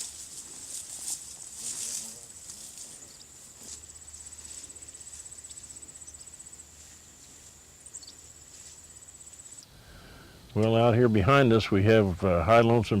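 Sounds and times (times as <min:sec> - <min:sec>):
high insect trill: 0:00.0 - 0:10.2.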